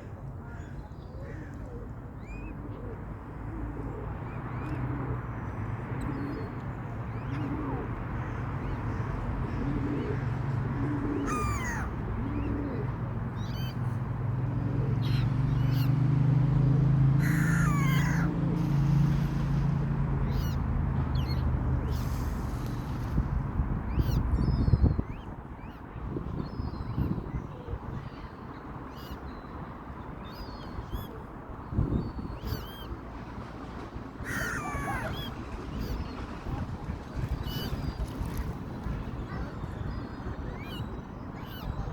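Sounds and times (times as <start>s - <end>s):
birds calling sharply: 34.2s - 36.5s.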